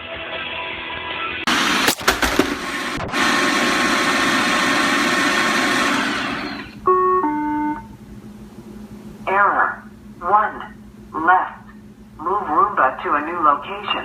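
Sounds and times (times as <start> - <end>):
robot vacuum running: 1.5 - 6.8.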